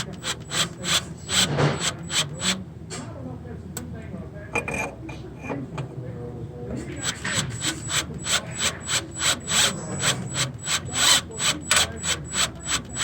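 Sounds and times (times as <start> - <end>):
drill ratcheting click: 0.0 - 2.6, 7.0 - 13.0.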